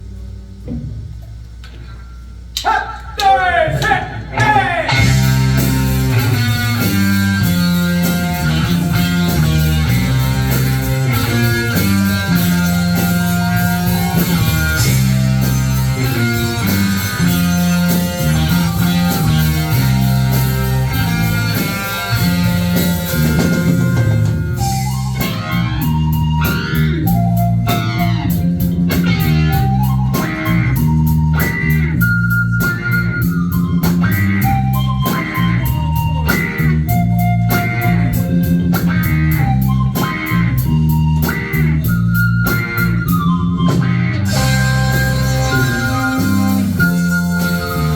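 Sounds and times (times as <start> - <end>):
live rock band playing: 4.4 - 47.9
gliding melody line: 44.2 - 47.9.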